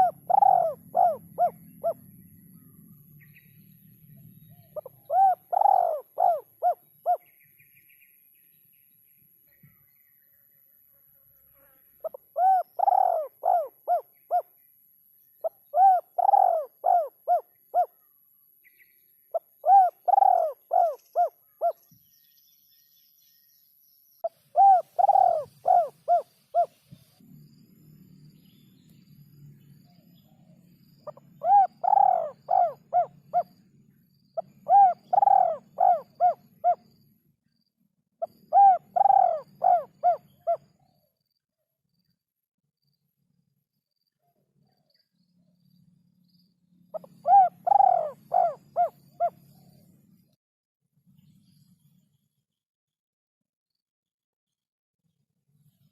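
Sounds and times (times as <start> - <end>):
dove cooing: 0.0 - 2.2, 4.6 - 7.2, 12.0 - 14.4, 15.6 - 18.0, 19.4 - 21.8, 24.5 - 26.8, 31.0 - 33.5, 34.4 - 36.8, 38.2 - 40.7, 47.0 - 49.7.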